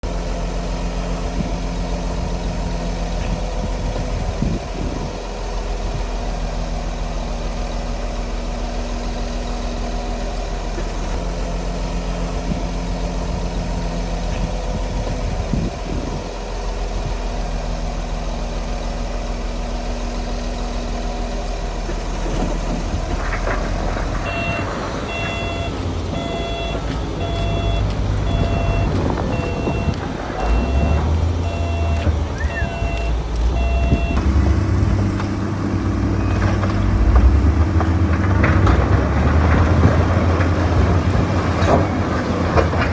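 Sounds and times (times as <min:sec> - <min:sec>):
heavy machine engine running: 0:00.0 - 0:42.9
reversing alarm beeping: 0:24.2 - 0:34.2.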